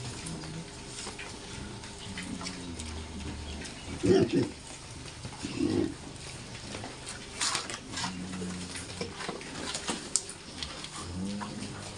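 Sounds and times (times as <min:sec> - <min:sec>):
pigs snuffling and rustling: 0:00.0 - 0:11.9
pig low grunt: 0:01.5 - 0:04.7, 0:05.4 - 0:06.0, 0:07.9 - 0:09.2, 0:10.7 - 0:11.9.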